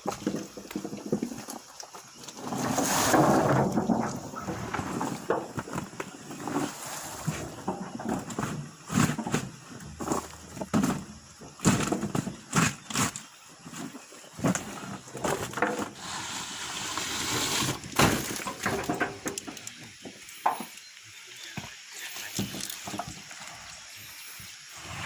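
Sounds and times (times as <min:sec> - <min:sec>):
steady hiss: 0:01.5 - 0:25.0
fruit bunches thudding onto truck: 0:02.4 - 0:06.6, 0:07.2 - 0:12.8, 0:17.7 - 0:19.6.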